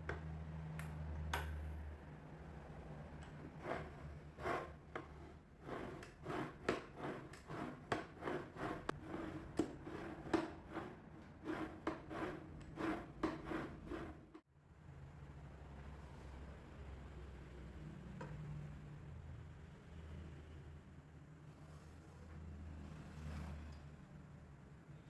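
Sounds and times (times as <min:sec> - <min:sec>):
hand sanding strokes: 0:03.5 - 0:14.4.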